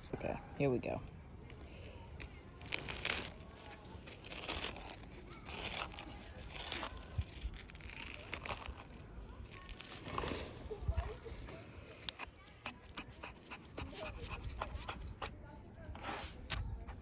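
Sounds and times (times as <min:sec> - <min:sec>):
crinkling and rustling: 0:01.4 - 0:13.2.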